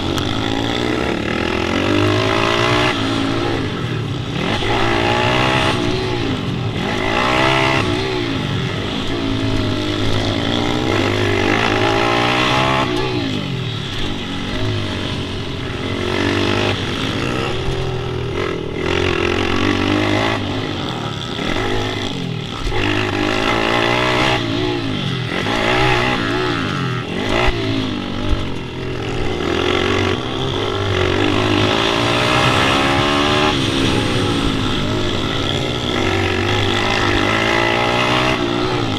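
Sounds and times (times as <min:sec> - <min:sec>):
pit bike engines revving: 0:00.0 - 0:38.9.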